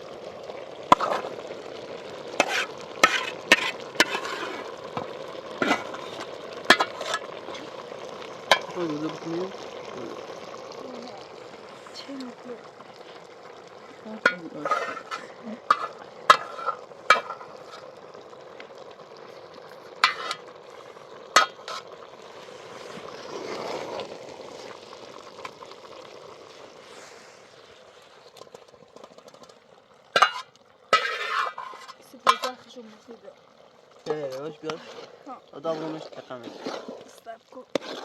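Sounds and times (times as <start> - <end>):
food sizzling in a pan: 0.0 - 38.0.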